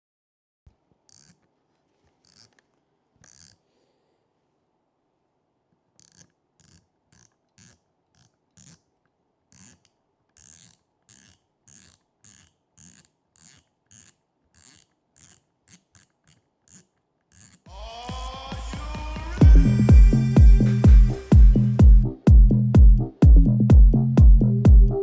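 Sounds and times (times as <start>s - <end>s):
faint hand strokes on spinning reel: 1.1s - 3.8s, 5.9s - 8.9s, 9.5s - 17.7s.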